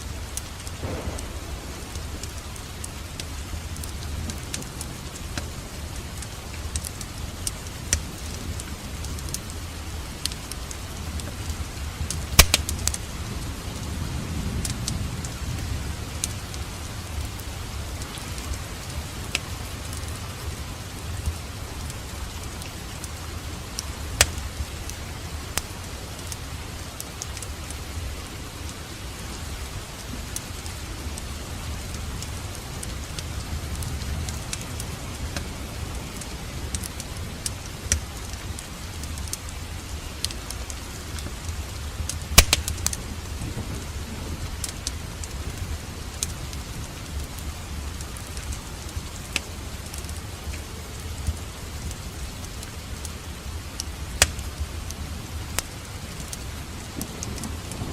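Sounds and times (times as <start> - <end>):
fire crackles and pops: 0.0 - 57.9
fire rumbling in fireplace: 0.1 - 27.5.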